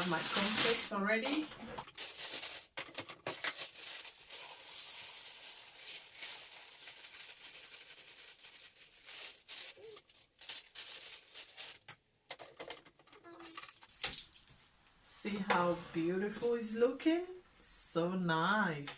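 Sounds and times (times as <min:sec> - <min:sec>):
flakes rustling and clattering: 0:00.0 - 0:11.9
cereal pouring into plastic dispenser: 0:01.8 - 0:09.8.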